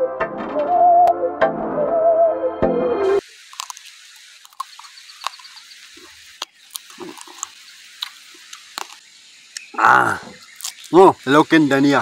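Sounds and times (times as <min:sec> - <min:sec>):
chewing with wet mouth smacks: 0:04.5 - 0:09.0.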